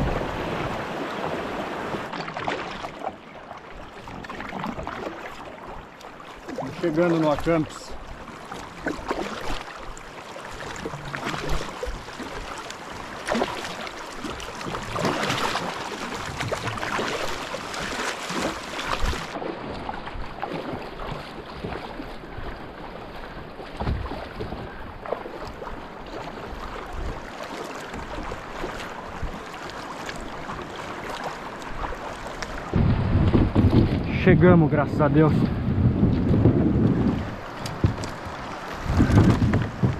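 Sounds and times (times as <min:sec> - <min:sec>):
wind buffeting microphone: 0:00.0 - 0:01.0, 0:32.6 - 0:39.9.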